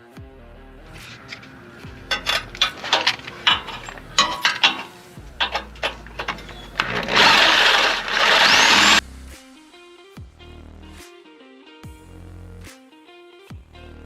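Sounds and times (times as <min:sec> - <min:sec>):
metal clanks on exhaust pipe: 0:01.0 - 0:09.0
reciprocating saw cutting pipe: 0:01.0 - 0:09.0.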